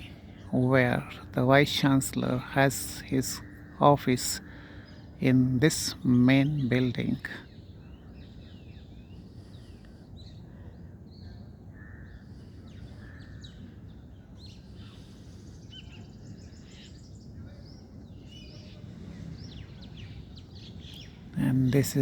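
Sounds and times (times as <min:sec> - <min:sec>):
birds chirping: 0:00.0 - 0:22.0
low outdoor rumble: 0:00.0 - 0:22.0.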